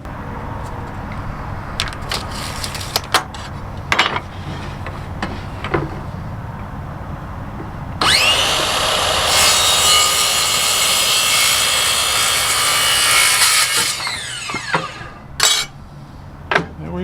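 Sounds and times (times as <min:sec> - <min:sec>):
table saw cutting wood: 0:08.0 - 0:15.7.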